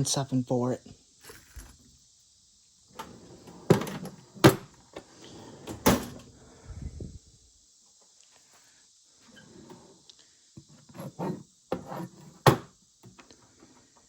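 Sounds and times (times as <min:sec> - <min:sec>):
hard objects rubbing and clattering: 0:01.2 - 0:01.9.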